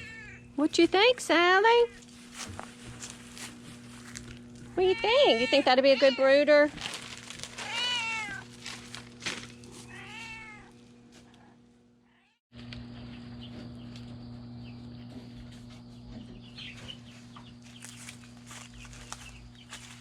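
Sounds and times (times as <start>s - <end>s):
cat meowing: 0.0s - 0.5s, 4.8s - 6.4s, 7.6s - 8.5s, 9.8s - 10.8s, 12.1s - 12.4s
steady low hum: 0.0s - 20.0s.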